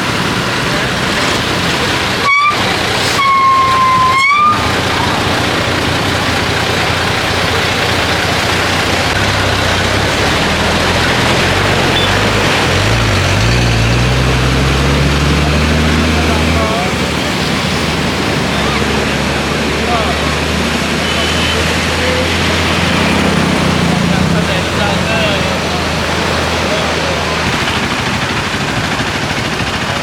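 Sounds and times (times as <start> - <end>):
engine droning: 0.0 - 30.0
traffic driving through water: 0.0 - 30.0
vehicle horn: 2.1 - 5.1.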